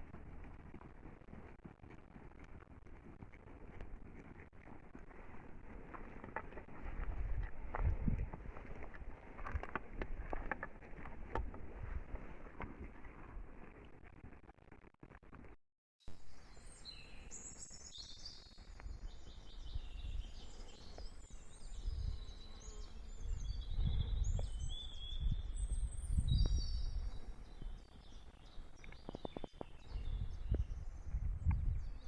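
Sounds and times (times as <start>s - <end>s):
wind rumble on microphone: 2.1s - 13.9s, 18.2s - 32.0s
songbirds chirping and trilling: 16.2s - 32.0s.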